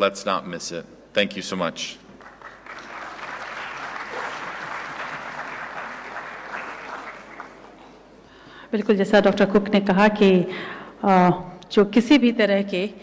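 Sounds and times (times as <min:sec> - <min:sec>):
audience applauding: 0:02.2 - 0:08.1.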